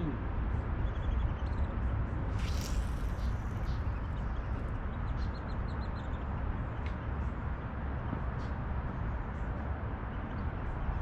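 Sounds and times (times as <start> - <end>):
small birds chirping: 0.6 - 7.2.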